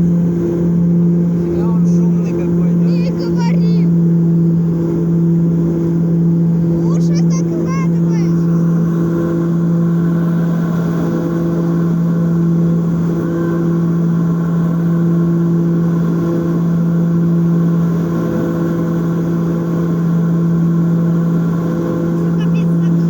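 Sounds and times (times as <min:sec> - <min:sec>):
propeller engines droning: 0:00.0 - 0:23.0.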